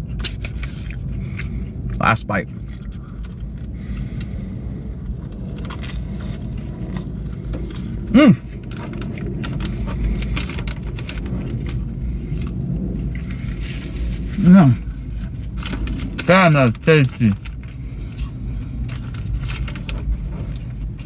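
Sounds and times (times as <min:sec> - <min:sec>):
low engine rumble: 0:00.0 - 0:21.0
person eating: 0:07.7 - 0:08.4, 0:14.1 - 0:15.0
person humming mmm: 0:08.1 - 0:08.4, 0:14.4 - 0:14.8.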